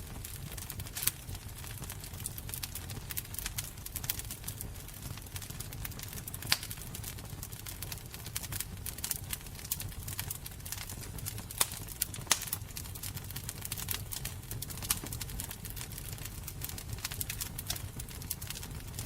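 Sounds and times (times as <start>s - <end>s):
fire crackling and popping: 0.0s - 19.0s.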